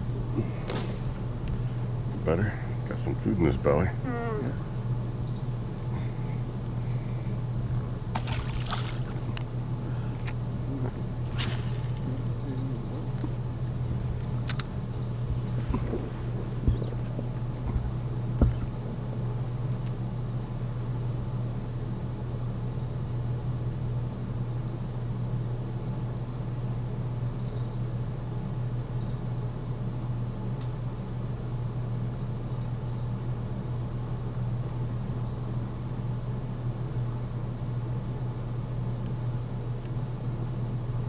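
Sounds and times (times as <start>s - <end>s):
boat motor running: 8.1s - 9.4s, 10.1s - 14.6s, 15.2s - 19.3s.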